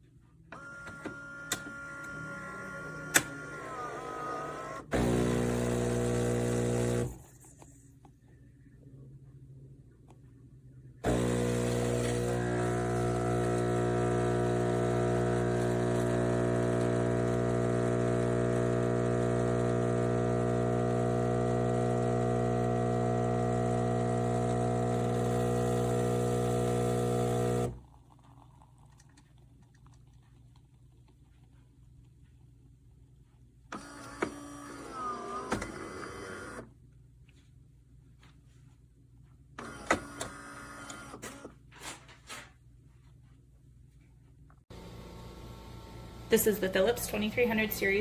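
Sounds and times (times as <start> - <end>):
espresso machine humming: 0.6 - 7.2, 11.0 - 27.9, 44.7 - 48.0.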